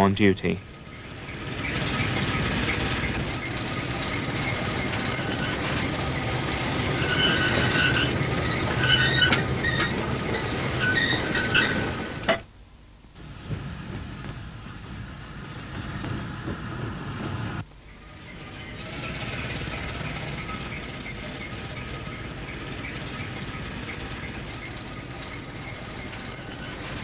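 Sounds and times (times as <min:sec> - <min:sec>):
train rumbling on track: 0:00.0 - 0:12.4, 0:13.2 - 0:27.0
train wheels squealing: 0:00.8 - 0:12.3, 0:18.2 - 0:27.0.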